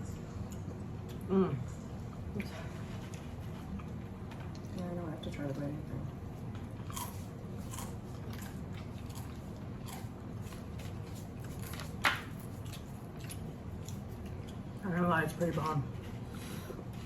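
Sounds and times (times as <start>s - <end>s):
chewing with wet mouth smacks: 6.5s - 14.8s.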